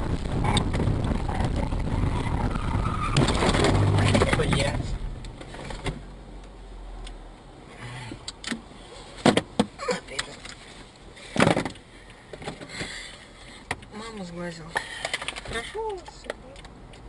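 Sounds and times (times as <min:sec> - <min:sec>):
clicks and knocks inside car: 0:09.2 - 0:10.2, 0:11.3 - 0:12.9.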